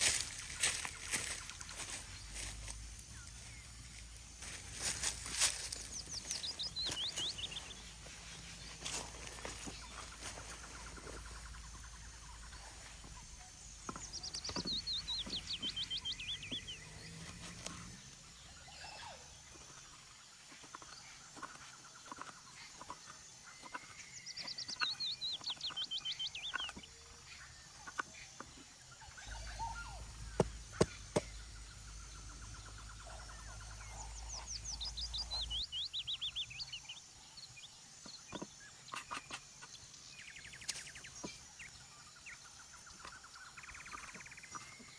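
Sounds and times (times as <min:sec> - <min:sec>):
songbird singing falling notes: 0:05.0 - 0:07.9, 0:13.8 - 0:17.9, 0:23.6 - 0:26.9, 0:29.2 - 0:37.0.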